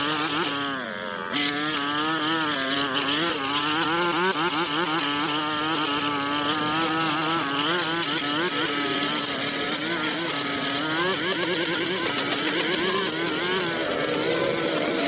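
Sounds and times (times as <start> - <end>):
pressure washer engine running: 1.4 - 15.0.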